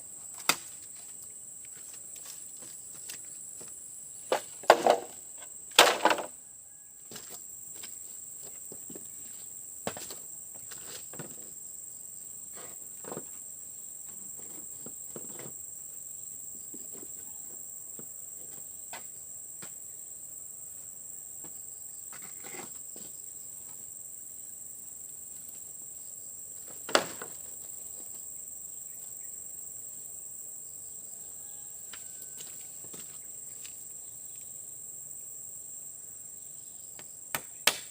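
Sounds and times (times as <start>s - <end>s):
crickets chirping: 0.0s - 37.9s.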